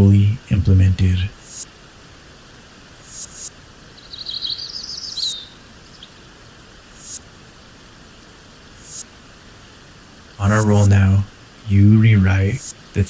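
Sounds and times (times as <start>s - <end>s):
soft hiss of nature ambience: 0.0s - 13.0s
songbird chirping: 3.1s - 7.3s.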